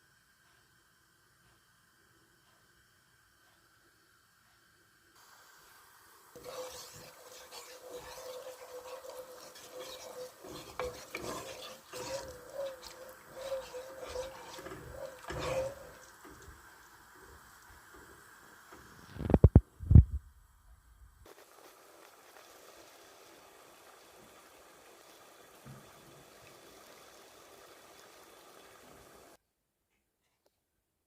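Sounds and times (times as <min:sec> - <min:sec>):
spoon scraping in a bowl: 0:06.4 - 0:16.4.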